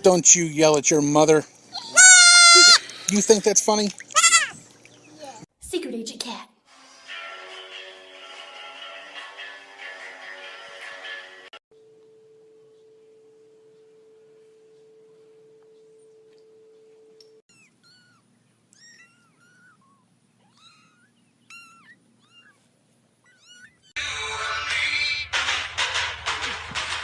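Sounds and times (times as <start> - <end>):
kitten mewing: 1.8 - 2.8, 17.5 - 22.6
loud music: 24.0 - 27.0.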